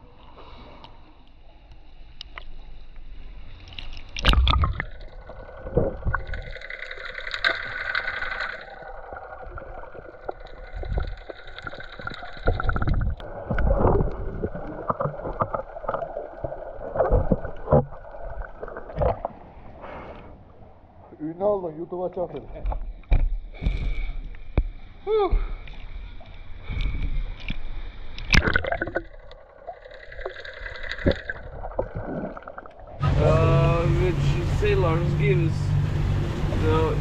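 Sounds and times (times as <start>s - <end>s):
motorboat engine running: 33.0s - 37.0s.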